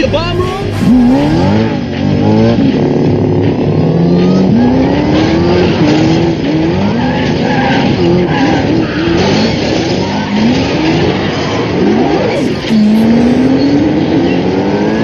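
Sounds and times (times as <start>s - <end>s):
car engines revving: 0.0s - 15.0s
tyres squealing and skidding: 4.0s - 15.0s.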